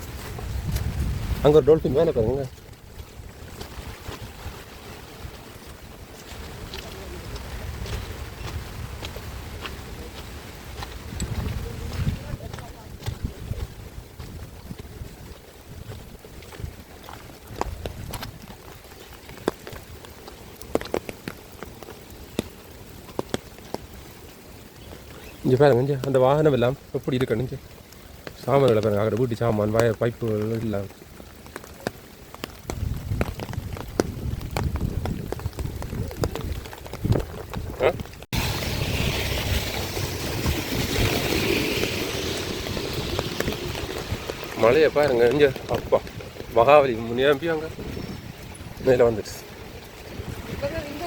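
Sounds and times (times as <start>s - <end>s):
floodwater rushing: 0.0s - 51.0s
raindrops ticking: 0.0s - 51.0s
steady low rumble: 38.3s - 46.6s.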